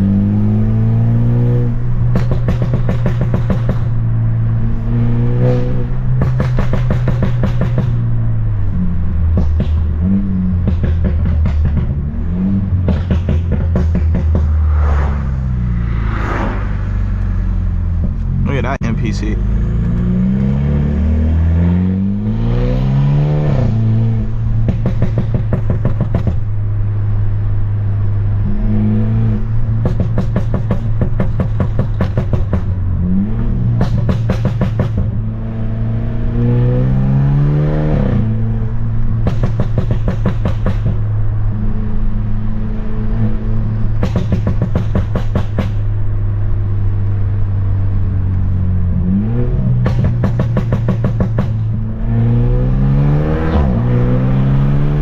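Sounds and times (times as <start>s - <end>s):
car engine revving: 0.0s - 55.0s
exhaust pops and bangs: 2.0s - 4.0s, 6.1s - 8.0s, 9.2s - 12.0s, 12.7s - 14.7s, 24.6s - 26.5s, 29.8s - 32.8s, 33.7s - 35.2s, 39.0s - 41.2s, 43.9s - 45.9s, 49.7s - 51.8s.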